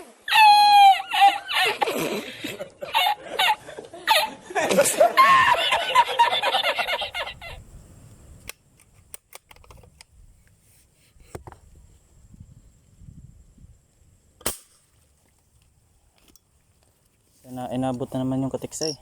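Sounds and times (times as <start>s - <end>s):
airgun handling clicks: 8.4s - 10.2s
airgun shot: 14.4s - 14.9s.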